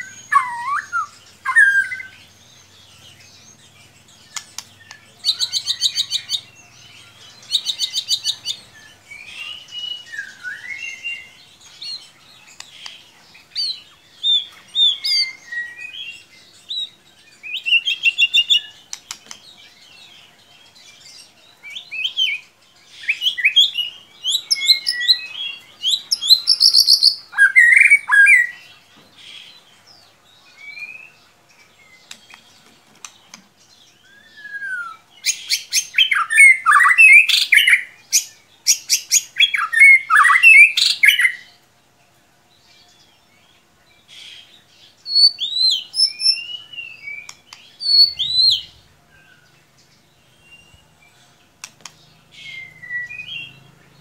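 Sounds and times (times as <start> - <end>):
bird singing whistled phrases: 0.0 - 2.2, 7.5 - 11.4, 14.3 - 16.2, 23.0 - 28.6, 34.0 - 41.4, 45.0 - 49.4, 52.4 - 53.6.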